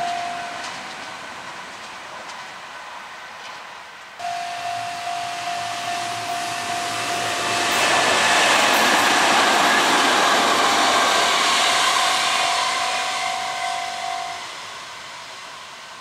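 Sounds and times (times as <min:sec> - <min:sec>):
steady high whine: 0:00.0 - 0:01.0, 0:04.2 - 0:16.0
train wheels rumbling on rails: 0:00.0 - 0:16.0.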